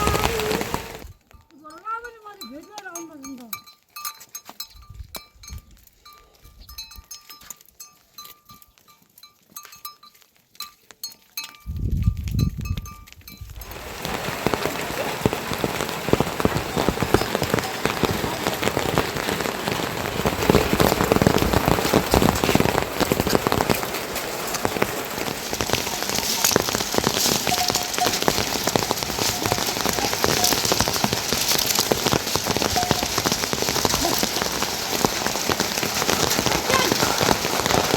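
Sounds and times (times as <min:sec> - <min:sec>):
heavy rain hissing: 0:00.0 - 0:01.1, 0:13.6 - 0:37.9
light raindrop ticks: 0:00.0 - 0:37.9.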